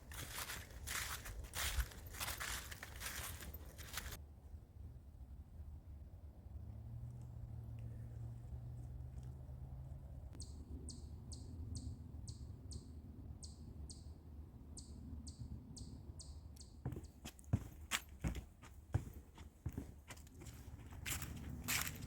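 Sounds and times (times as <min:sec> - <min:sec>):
footsteps on a trail: 0:00.0 - 0:04.2, 0:16.8 - 0:22.0.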